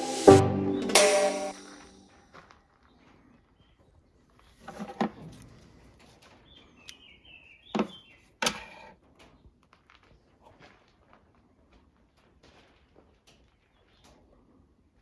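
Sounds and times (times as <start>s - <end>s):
short high chirps: 0.0s - 1.8s.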